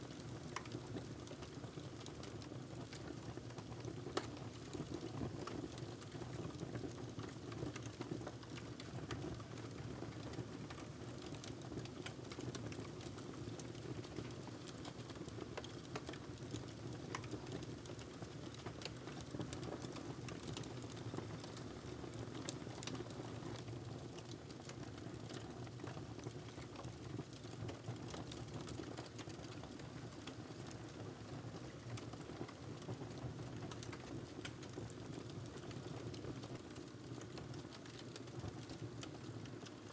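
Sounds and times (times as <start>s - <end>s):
wood fire crackling: 0.1s - 39.9s
fire pops and snaps: 11.4s - 21.7s, 33.6s - 35.8s.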